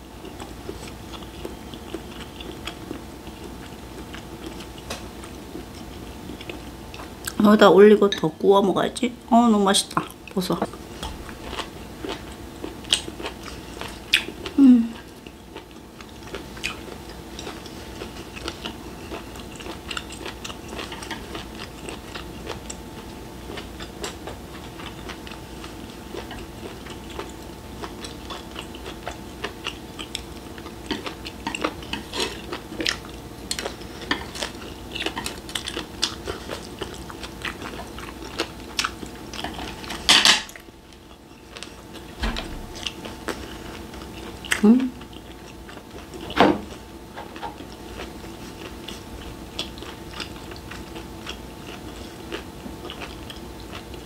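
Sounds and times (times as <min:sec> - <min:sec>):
steady low hum: 0:00.0 - 0:54.0
person chewing: 0:00.2 - 0:07.4, 0:09.9 - 0:54.0
person humming mm: 0:14.5 - 0:15.0, 0:44.6 - 0:45.0.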